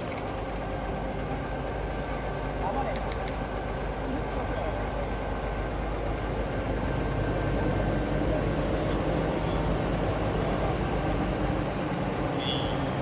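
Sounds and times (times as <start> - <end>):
heavy truck engine hum: 0.0 - 13.0
street vehicle noise: 0.0 - 13.0.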